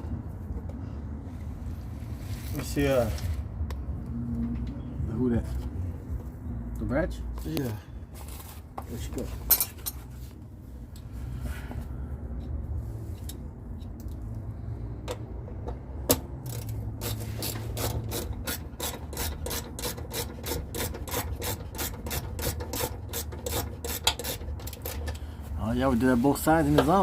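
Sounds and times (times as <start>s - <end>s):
ratchet wrench clicking: 15.0s - 25.2s.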